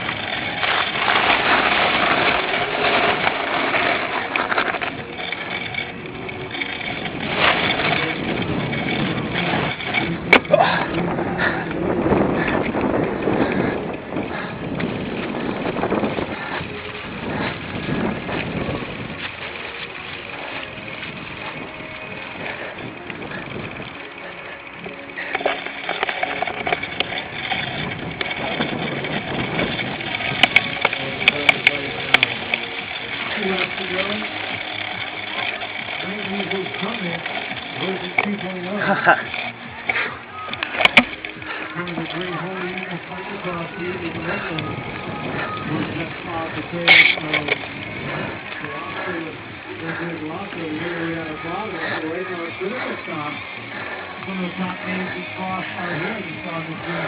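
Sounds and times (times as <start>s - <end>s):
wind rush on camera: 0.0s - 24.9s, 26.5s - 32.9s, 40.4s - 52.1s
bike rattling over rough ground: 0.0s - 57.0s.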